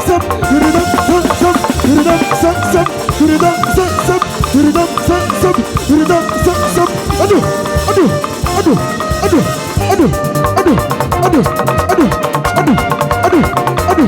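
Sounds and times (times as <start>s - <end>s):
live band dance music: 0.0s - 14.0s.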